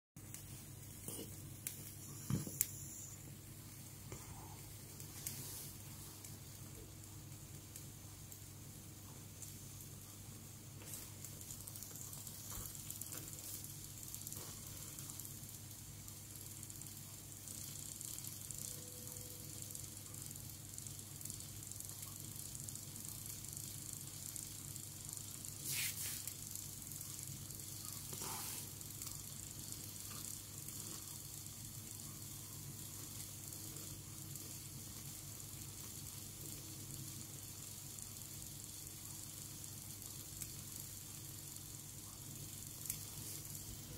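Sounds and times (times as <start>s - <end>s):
low steady hum: 0.2s - 43.9s
steam hissing from jets: 25.6s - 26.4s, 28.1s - 28.8s.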